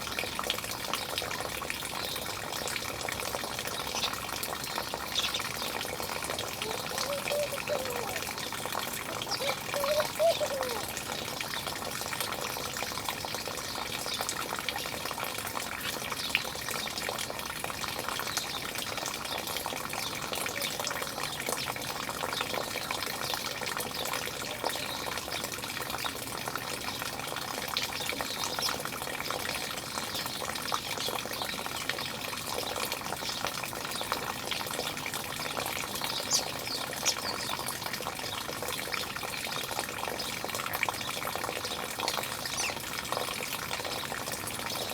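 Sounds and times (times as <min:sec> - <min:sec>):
running water: 0:00.0 - 0:44.9
short bird calls: 0:06.6 - 0:08.4, 0:09.1 - 0:11.0.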